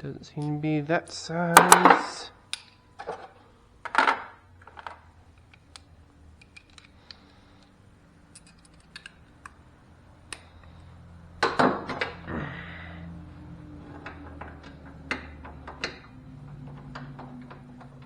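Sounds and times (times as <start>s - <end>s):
hand tools clicking and clinking: 1.6s - 1.8s.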